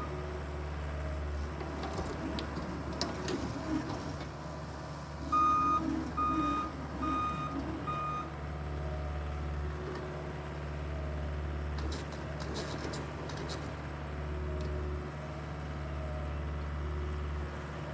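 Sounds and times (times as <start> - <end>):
backup alarm beeping: 5.3 - 8.3.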